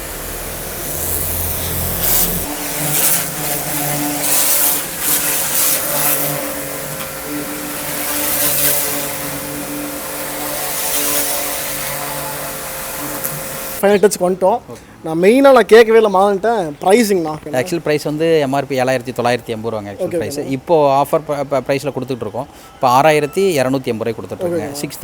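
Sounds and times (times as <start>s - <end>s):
pressure washer motor hum: 0.0s - 13.8s
water jet hissing: 0.0s - 13.9s.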